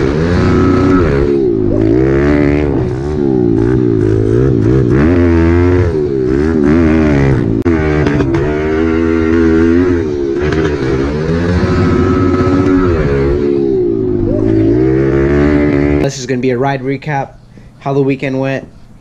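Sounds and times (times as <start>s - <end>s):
pit bike engine revving: 0.0s - 17.2s.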